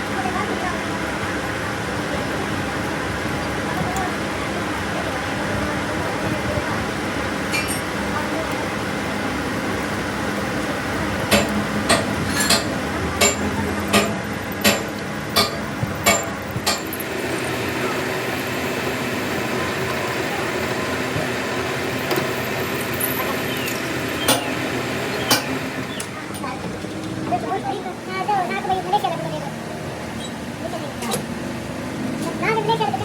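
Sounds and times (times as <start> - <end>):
workshop hum: 0.0 - 33.0
hammer striking metal: 11.3 - 17.1, 24.2 - 24.6, 25.2 - 25.6.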